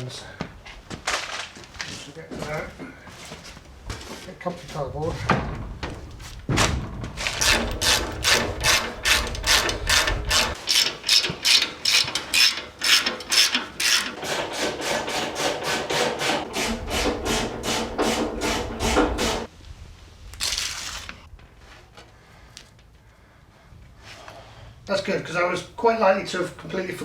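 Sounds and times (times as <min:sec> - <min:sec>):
short rasp: 0:07.4 - 0:10.6, 0:13.8 - 0:19.5.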